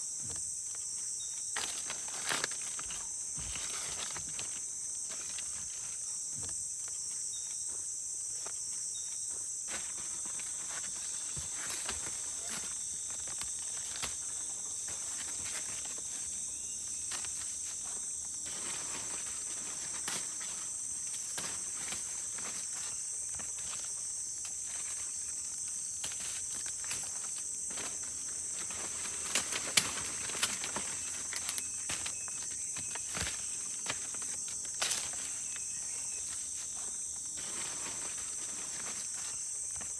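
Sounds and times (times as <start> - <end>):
forest insects chorus: 0.0 - 39.9.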